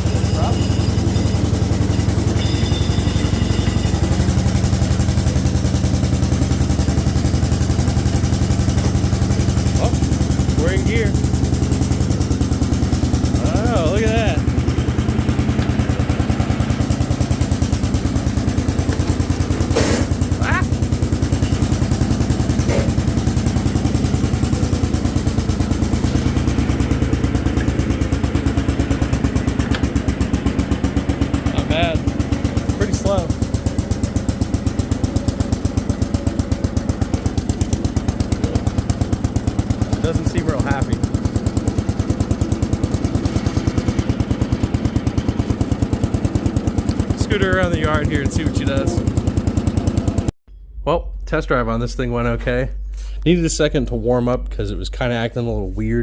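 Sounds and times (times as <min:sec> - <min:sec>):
garden tractor engine running: 0:00.0 - 0:50.3.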